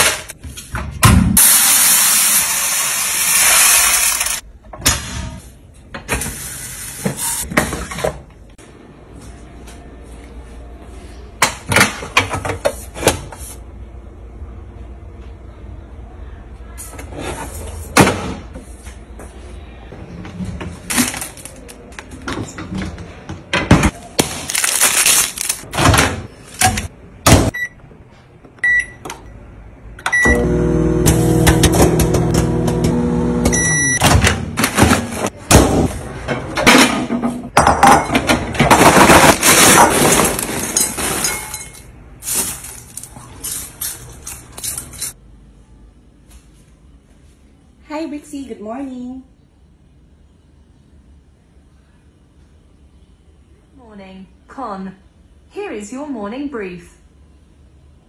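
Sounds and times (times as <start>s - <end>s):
appliance motor humming: 30.2s - 33.9s.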